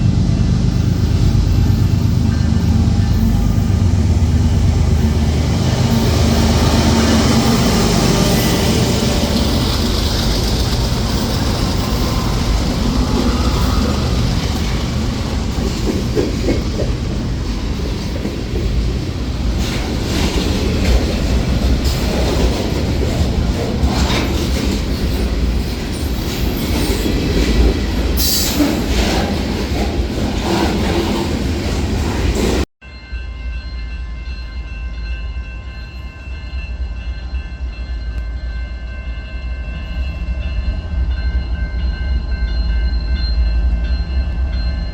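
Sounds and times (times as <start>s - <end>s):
train wheels rumbling on rails: 0.0s - 32.7s.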